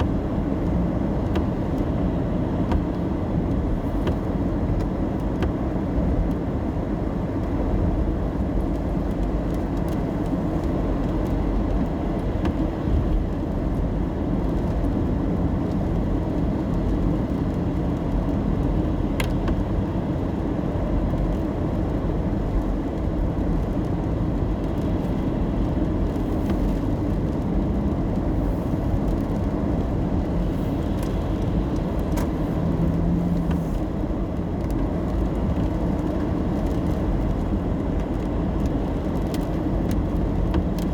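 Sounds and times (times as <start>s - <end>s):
car road and engine rumble: 0.0s - 40.9s.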